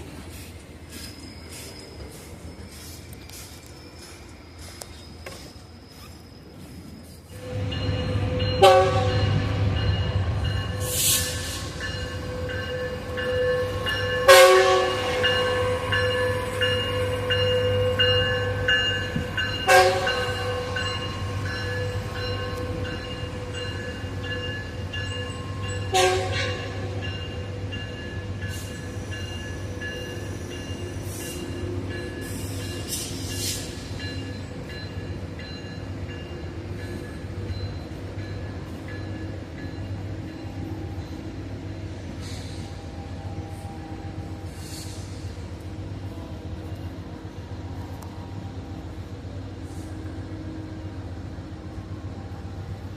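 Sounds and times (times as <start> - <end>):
train rumbling: 0.0 - 52.9.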